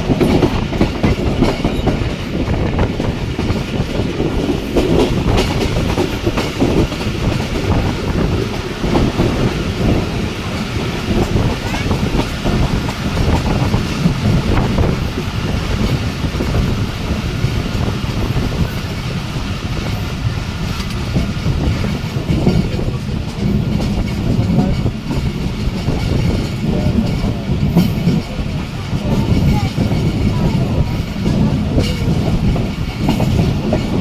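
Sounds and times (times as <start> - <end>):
clatter over the track: 0.0 - 34.0
train wheels rumbling on rails: 0.0 - 34.0.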